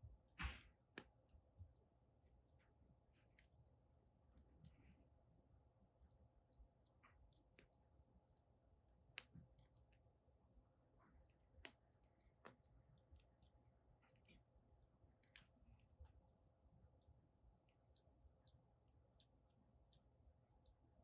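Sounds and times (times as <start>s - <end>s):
wood fire crackling: 6.4s - 16.9s.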